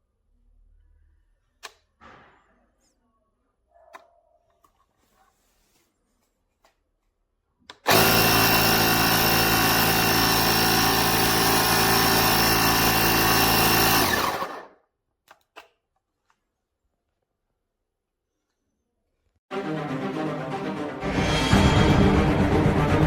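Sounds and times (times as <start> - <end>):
air compressor humming: 7.9 - 14.6.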